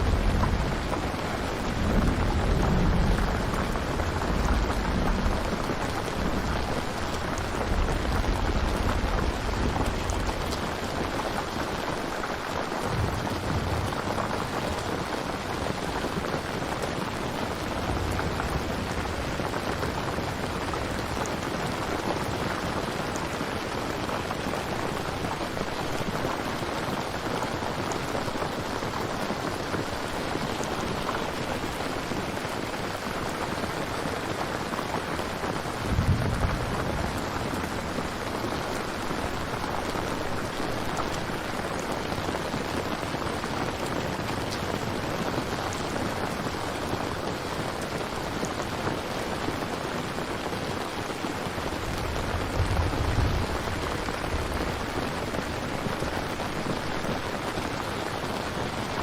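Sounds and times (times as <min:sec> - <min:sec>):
low rumble of thunder: 0:00.0 - 0:26.4, 0:34.9 - 0:47.2, 0:51.2 - 0:57.7
steady rain falling: 0:00.0 - 0:59.0.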